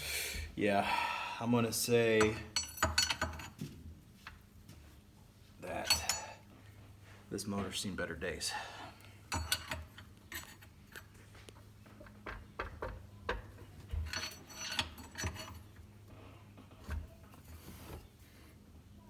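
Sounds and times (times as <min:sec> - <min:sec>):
metal tools clinking and knocking: 0:02.1 - 0:04.4, 0:05.6 - 0:06.5, 0:09.0 - 0:18.0.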